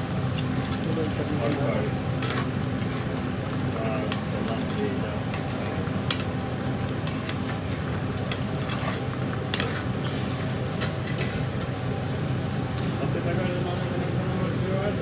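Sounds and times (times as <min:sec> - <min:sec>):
curry sizzling in a pan: 0:00.0 - 0:14.7.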